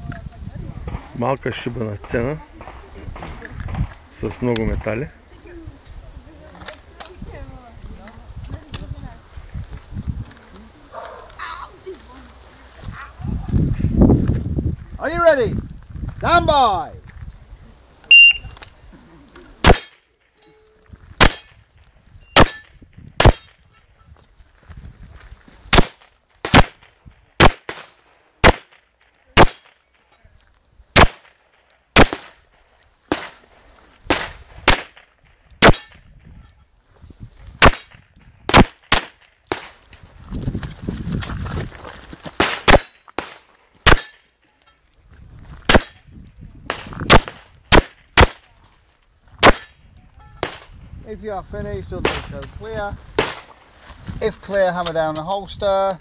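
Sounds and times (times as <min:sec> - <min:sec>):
shot timer beep: 0:18.1 - 0:18.6
handgun shots: 0:19.6 - 0:20.0, 0:25.7 - 0:28.8, 0:29.4 - 0:29.8, 0:31.0 - 0:31.3, 0:32.0 - 0:32.4, 0:34.1 - 0:36.0, 0:42.4 - 0:44.2, 0:49.4 - 0:49.7, 0:53.2 - 0:53.5
bullets clanging on steel targets: 0:19.6 - 0:21.7, 0:22.4 - 0:23.8, 0:29.4 - 0:30.2, 0:32.0 - 0:32.5, 0:35.6 - 0:36.1, 0:37.6 - 0:38.1, 0:42.5 - 0:44.9, 0:45.7 - 0:46.1, 0:49.4 - 0:50.7.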